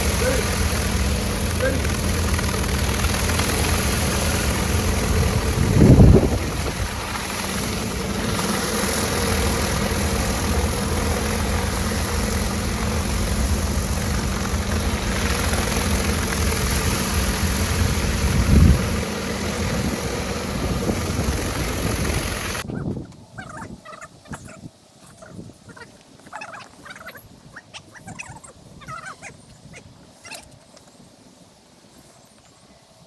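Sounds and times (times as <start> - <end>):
water jet hissing: 0.0 - 22.6
pressure washer engine hum: 0.0 - 22.7.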